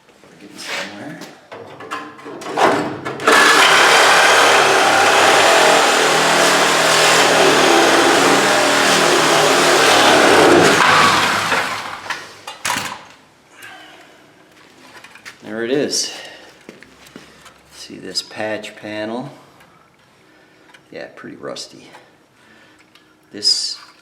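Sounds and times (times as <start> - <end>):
reciprocating saw cutting sheet metal: 3.2 - 12.1.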